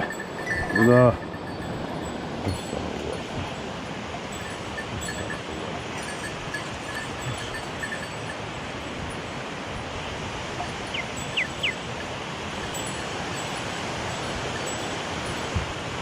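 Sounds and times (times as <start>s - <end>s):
mountain stream rushing: 0.0s - 16.0s
whistled bird notes: 10.8s - 11.8s.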